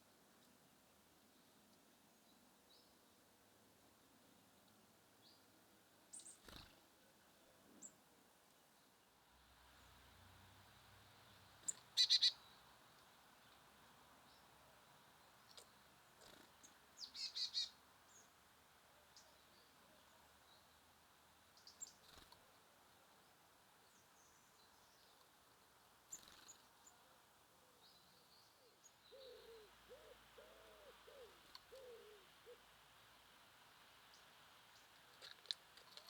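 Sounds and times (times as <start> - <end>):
songbirds chirping: 0.0 - 36.0
low hooting bird calls: 28.5 - 32.7.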